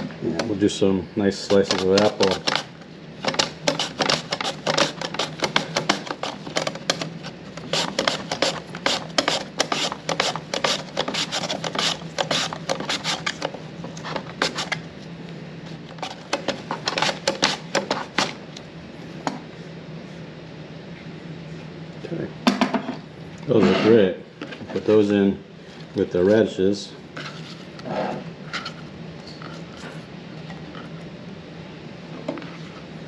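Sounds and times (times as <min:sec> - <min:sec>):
apple slicing on a mandoline: 0:01.5 - 0:13.4, 0:16.8 - 0:18.3.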